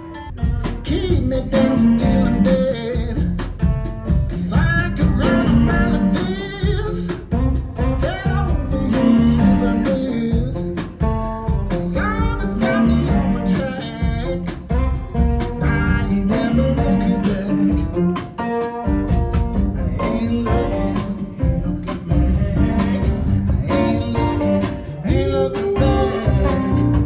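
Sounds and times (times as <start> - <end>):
song over loudspeaker: 4.4 - 10.2, 11.9 - 18.0, 19.6 - 27.0.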